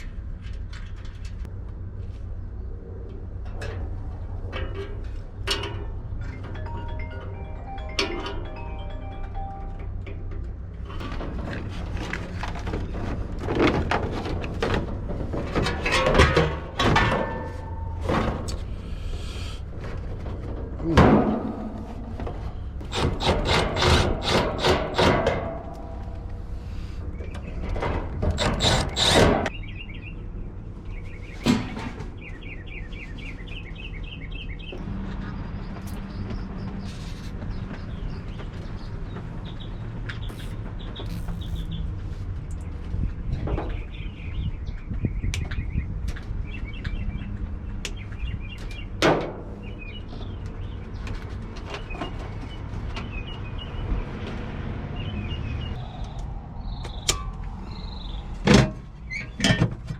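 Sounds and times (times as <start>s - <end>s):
clattering and knocks on metal unit: 15.5s - 18.4s
small birds chirping: 32.2s - 49.0s.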